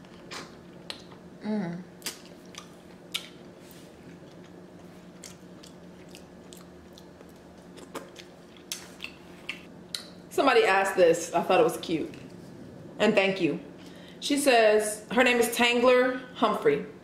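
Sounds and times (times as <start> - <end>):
faint steady hum: 0.0 - 17.0
person humming mm: 1.4 - 1.9
person chewing with wet mouth clicks: 2.0 - 3.4, 5.2 - 10.1.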